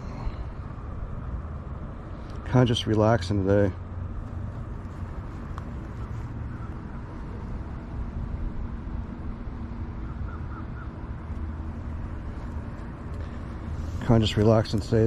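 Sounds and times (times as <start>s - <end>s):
low outdoor rumble: 0.0s - 15.0s
bird calling: 5.7s - 7.5s, 10.0s - 11.2s.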